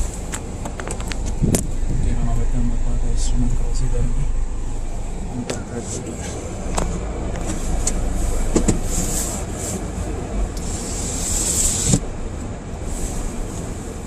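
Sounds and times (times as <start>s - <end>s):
car driving through snow: 0.0s - 14.0s
snow hissing: 10.6s - 12.0s.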